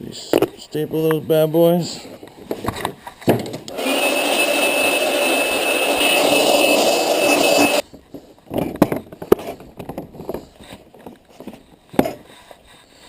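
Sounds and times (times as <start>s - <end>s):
motor whining: 3.7s - 7.8s.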